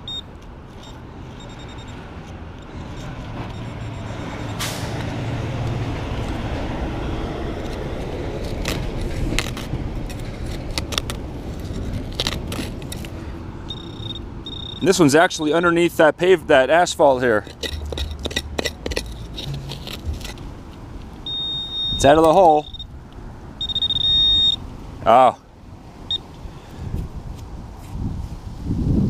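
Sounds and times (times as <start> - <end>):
vehicle passing with tyre noise: 0.0 - 29.0
sharp clicks and knocks: 7.6 - 14.8, 17.4 - 22.8.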